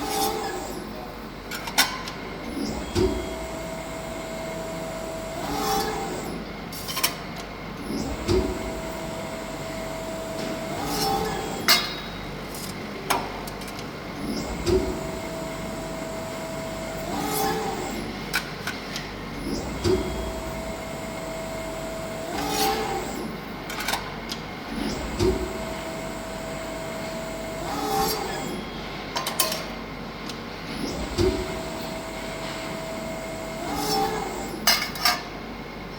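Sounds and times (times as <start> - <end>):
press brake machine whine: 2.3 - 7.0, 7.7 - 13.0, 14.0 - 35.4.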